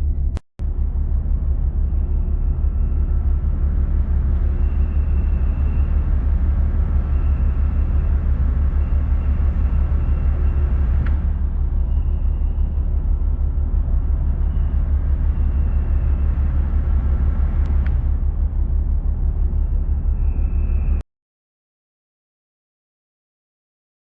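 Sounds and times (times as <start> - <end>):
low rumble of ship engines: 0.0 - 21.0
faint high whine: 0.7 - 21.0.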